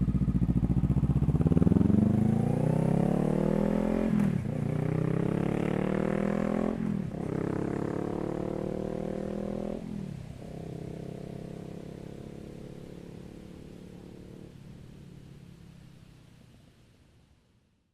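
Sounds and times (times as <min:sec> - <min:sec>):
motorcycle engine accelerating: 0:00.0 - 0:15.3.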